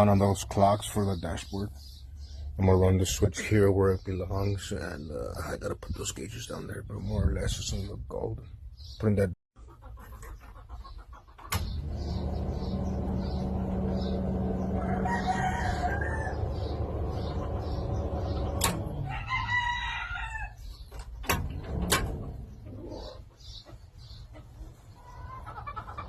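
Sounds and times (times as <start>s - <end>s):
rooster crowing: 14.0s - 17.1s, 19.0s - 20.6s.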